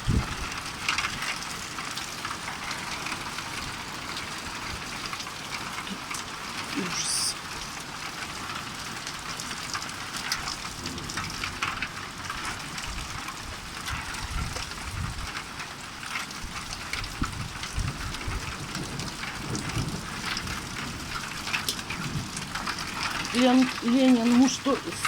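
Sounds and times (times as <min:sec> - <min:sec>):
hail and rain pelting down: 0:00.0 - 0:25.0.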